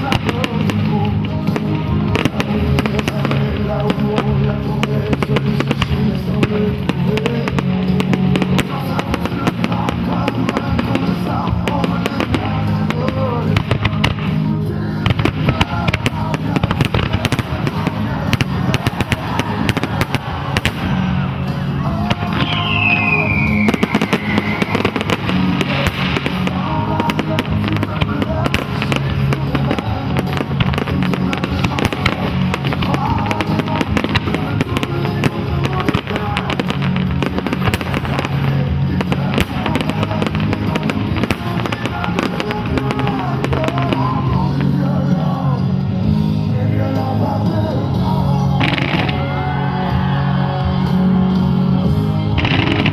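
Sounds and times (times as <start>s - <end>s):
fireworks crackling and popping: 0.0s - 52.9s
loud music: 0.0s - 52.9s
falling firework whistle: 22.1s - 26.4s.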